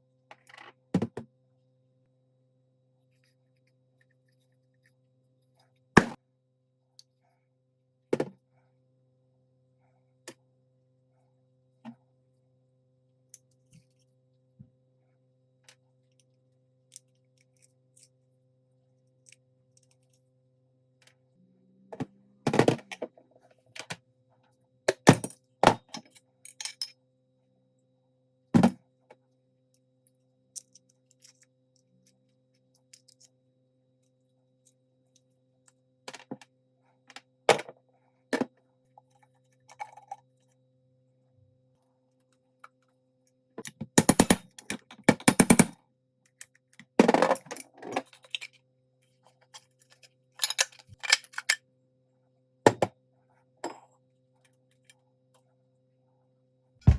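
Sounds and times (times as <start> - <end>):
knocks and clinks of metal parts: 24.9 - 27.0, 43.6 - 48.6, 49.5 - 51.6.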